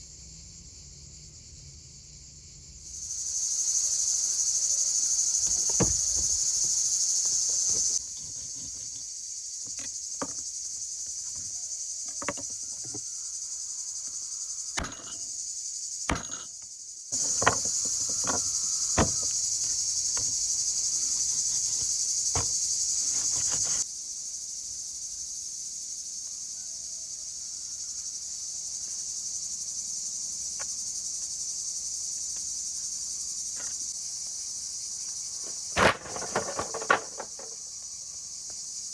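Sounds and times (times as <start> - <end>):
insect chorus: 0.0 - 38.9
sharp knocks: 5.5 - 6.4, 17.2 - 19.4.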